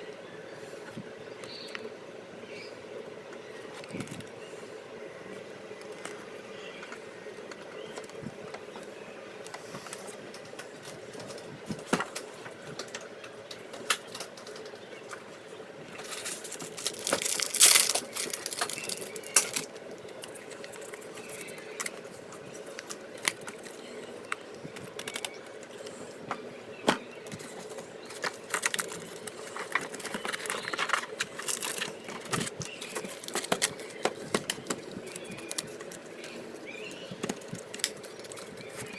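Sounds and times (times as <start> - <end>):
wrapper crinkling: 16.0 - 25.7, 28.1 - 34.0.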